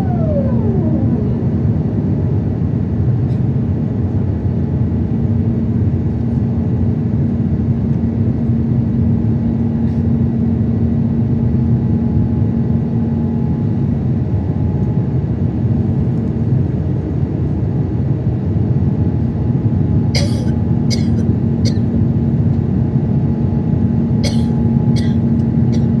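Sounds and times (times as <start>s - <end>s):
low hum: 0.0s - 2.6s
jet engine drone: 0.0s - 4.7s.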